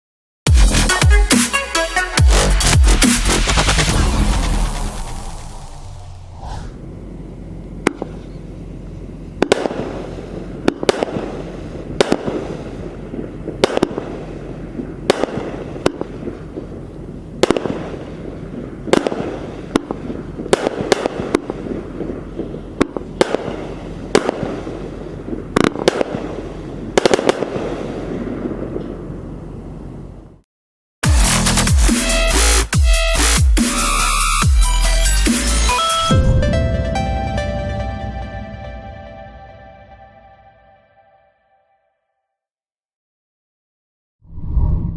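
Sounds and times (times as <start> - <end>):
firework sharp reports: 2.3 - 30.3.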